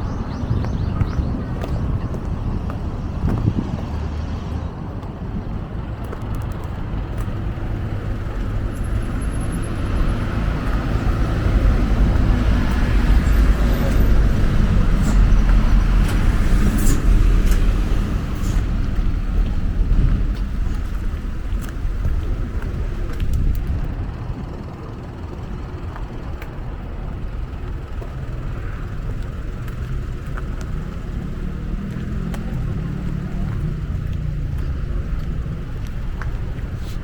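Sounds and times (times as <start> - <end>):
vehicle passing by: 0.0 - 5.4, 7.4 - 23.8, 29.6 - 37.0.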